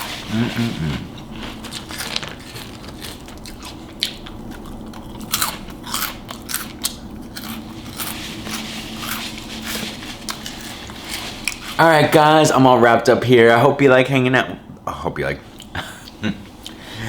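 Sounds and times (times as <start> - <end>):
close chewing with crunches: 0.0 - 11.8.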